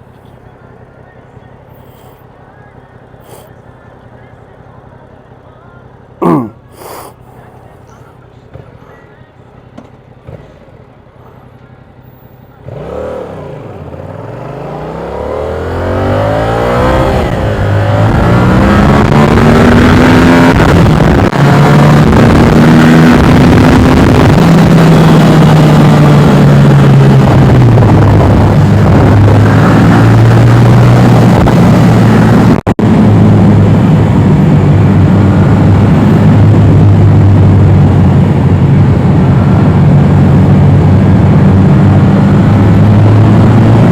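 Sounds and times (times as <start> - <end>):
motorcycle engine accelerating hard: 12.5 - 43.9.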